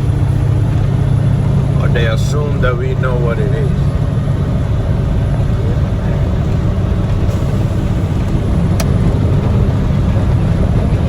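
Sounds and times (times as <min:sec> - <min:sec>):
road noise inside cab: 0:00.0 - 0:11.0
truck engine drone: 0:00.0 - 0:11.0.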